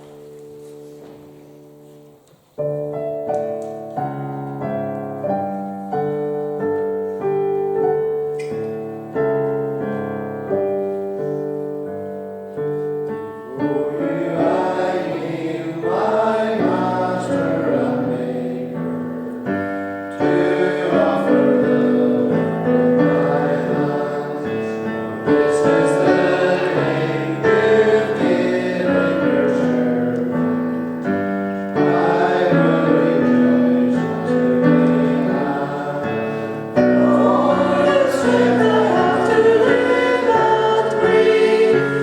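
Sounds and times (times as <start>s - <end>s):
piano playing a hymn: 0.0s - 42.0s
voices singing: 13.5s - 19.4s, 20.0s - 30.8s, 31.7s - 42.0s.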